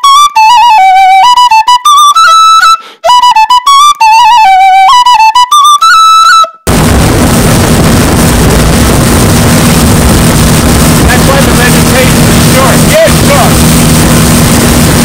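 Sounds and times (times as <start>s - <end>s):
flute melody: 0.0s - 6.7s
rush of wind and water: 6.7s - 15.0s
speedboat engine: 6.7s - 15.0s.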